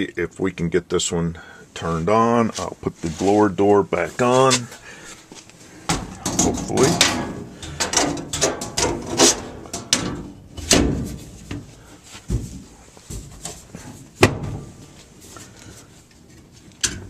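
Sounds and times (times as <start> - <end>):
metal door knocking and rattling: 5.9 - 11.2.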